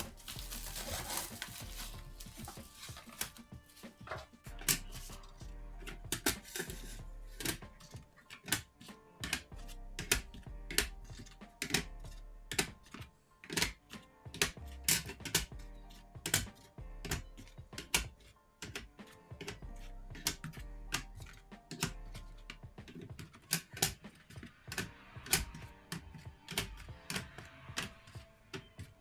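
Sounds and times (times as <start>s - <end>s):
hard objects tapping and clicking: 0.0s - 29.0s
soft background music: 0.0s - 29.0s.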